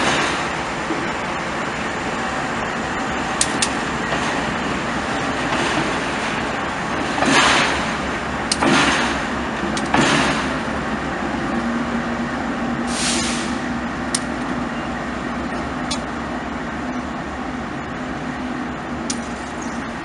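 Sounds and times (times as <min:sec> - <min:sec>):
train rumbling: 0:00.0 - 0:20.0
sharp metallic clicks: 0:03.4 - 0:03.8, 0:08.4 - 0:10.4, 0:14.1 - 0:14.5, 0:15.8 - 0:16.1
air hissing bursts: 0:12.8 - 0:13.7.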